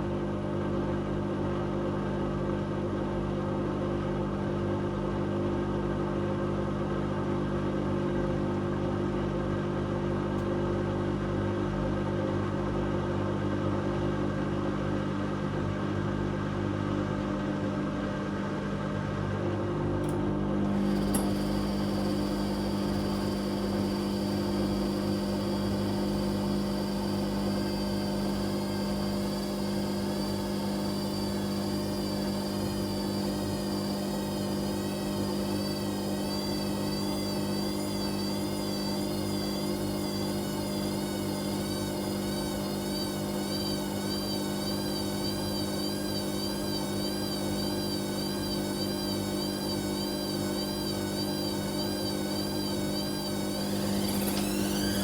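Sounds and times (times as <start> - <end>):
washing machine drum motor: 20.6 - 55.0.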